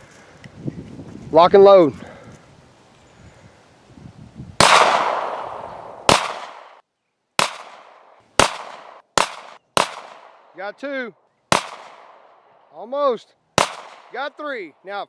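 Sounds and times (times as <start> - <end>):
pistol shots with echo: 4.6 - 6.8, 7.4 - 10.5, 11.5 - 12.4, 13.6 - 14.2.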